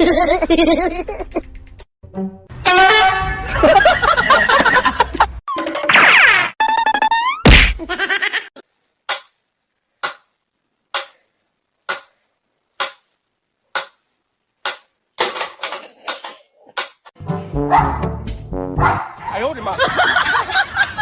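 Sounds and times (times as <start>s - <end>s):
clattering noise: 14.7s - 17.1s.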